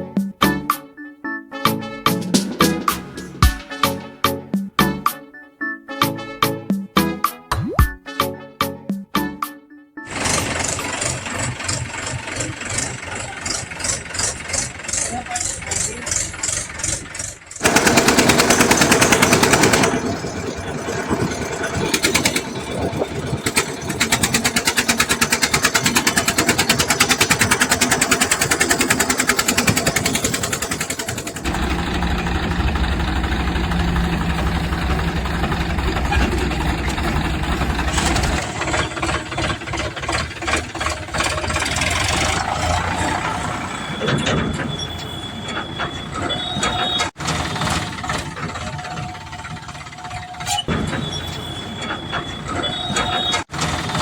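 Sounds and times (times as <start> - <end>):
engine chugging: 10.1 - 54.0.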